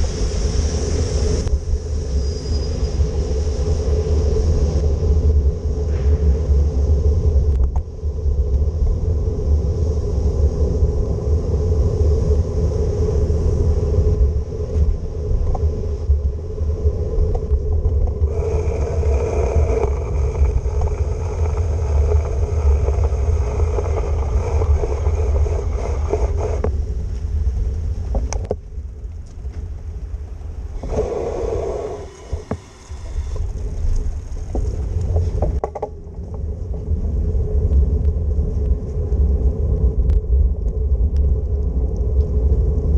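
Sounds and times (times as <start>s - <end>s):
wet road hiss: 0.0s - 7.1s, 18.2s - 28.0s, 30.5s - 35.6s
bicycle riding rumble: 0.0s - 42.9s
passing traffic hum: 13.0s - 37.4s.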